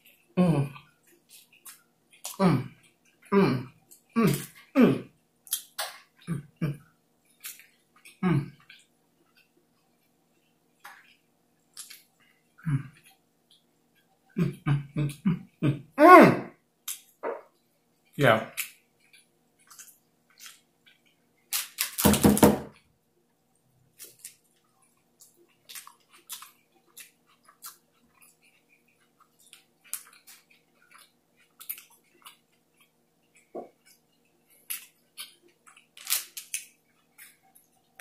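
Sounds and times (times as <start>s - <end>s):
chewing and wet lip smacks: 18.5s - 21.2s, 24.0s - 38.0s.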